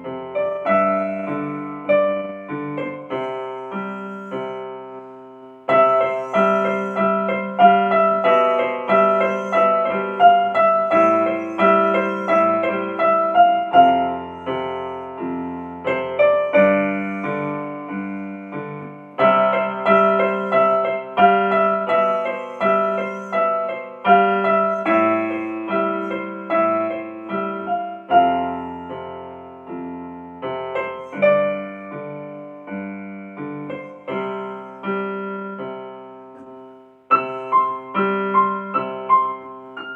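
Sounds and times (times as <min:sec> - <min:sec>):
solo piano music: 0:00.0 - 0:39.9.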